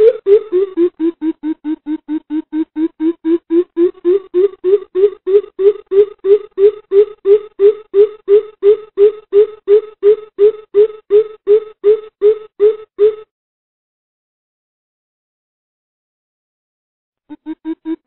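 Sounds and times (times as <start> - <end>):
bird hooting: 0.0 - 13.2, 17.3 - 18.0.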